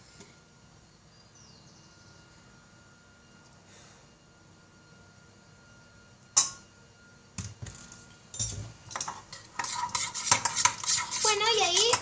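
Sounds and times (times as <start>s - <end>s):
spoon knocking and scraping a bowl: 8.5s - 12.0s.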